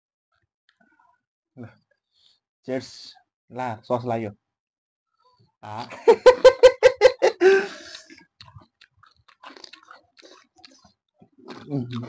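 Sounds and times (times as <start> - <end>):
person chewing and crunching food: 7.6 - 12.0.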